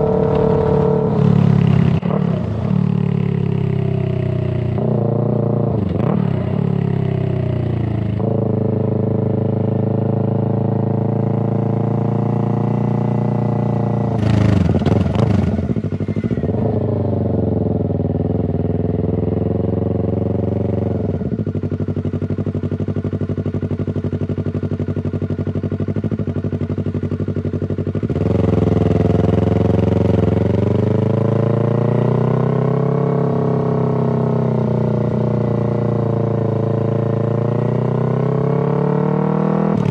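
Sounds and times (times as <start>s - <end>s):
motorcycle engine exhaust revving: 0.0s - 39.9s.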